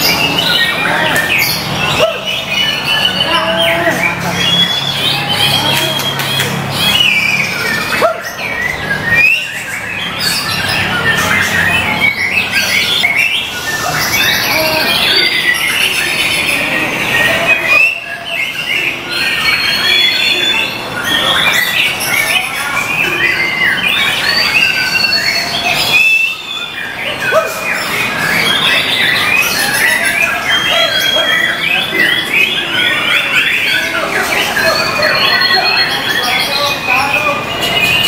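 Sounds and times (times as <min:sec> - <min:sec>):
birds singing whistled trills: 0:00.0 - 0:38.0.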